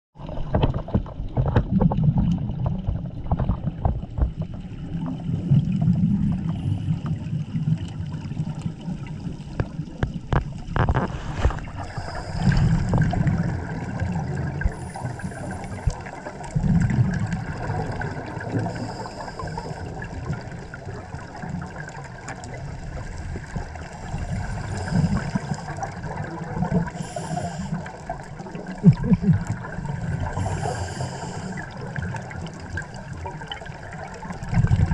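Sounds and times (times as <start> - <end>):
exhaled bubbles gurgling: 0.2 - 34.9
regulator hiss: 11.8 - 12.9, 26.9 - 27.8, 30.4 - 31.7.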